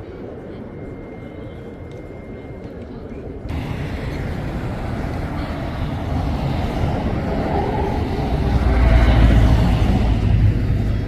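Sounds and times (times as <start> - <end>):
sea waves washing in: 3.5 - 11.0.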